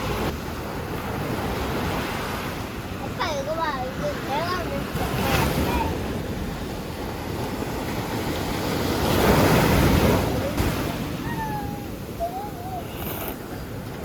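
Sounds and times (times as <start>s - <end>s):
sea waves washing ashore: 0.0s - 14.0s.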